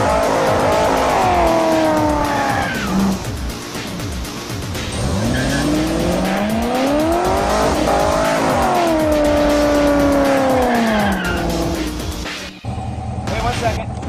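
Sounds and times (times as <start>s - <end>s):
tyres spinning in a burnout: 0.0s - 3.3s, 4.8s - 12.0s
car engine revving: 0.0s - 13.3s.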